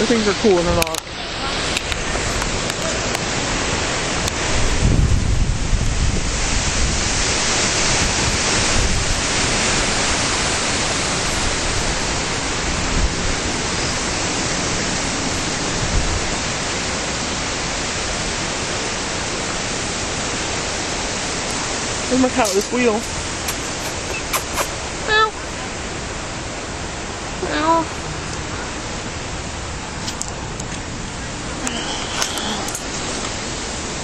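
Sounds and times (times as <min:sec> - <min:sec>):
strong wind buffeting microphone: 0:00.0 - 0:34.0.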